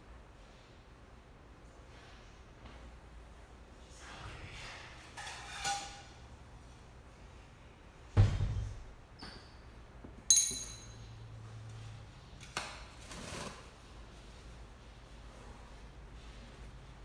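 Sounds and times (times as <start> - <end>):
sharp ringing clink: 10.3 - 11.2.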